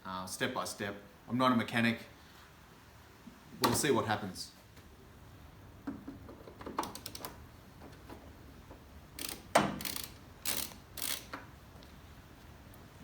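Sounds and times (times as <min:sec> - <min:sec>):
ratchet wrench clicking: 0:09.2 - 0:11.4.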